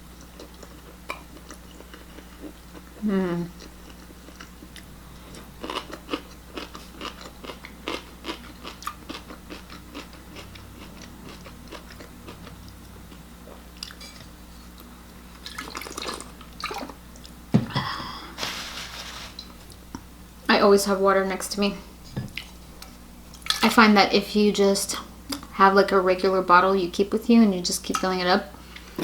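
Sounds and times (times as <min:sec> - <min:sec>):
person chewing and crunching: 0:00.2 - 0:14.1.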